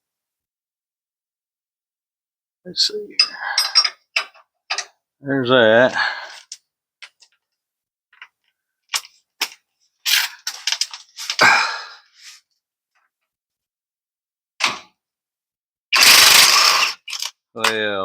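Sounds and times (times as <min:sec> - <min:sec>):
loud harsh burst: 0:16.0 - 0:17.0.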